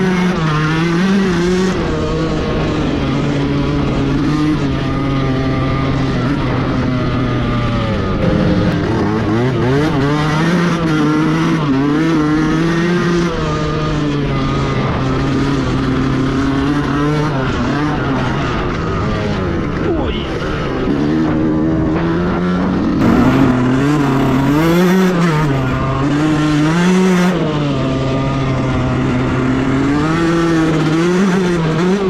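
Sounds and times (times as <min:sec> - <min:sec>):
dirt bike engine revving: 0:08.0 - 0:19.8, 0:20.8 - 0:32.0.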